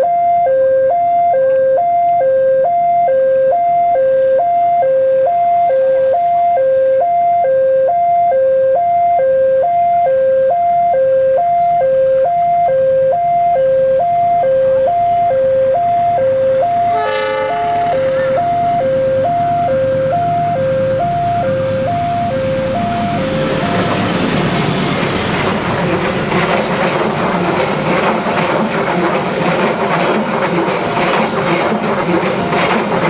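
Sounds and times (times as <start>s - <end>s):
level-crossing two-tone alarm: 0.0s - 24.3s.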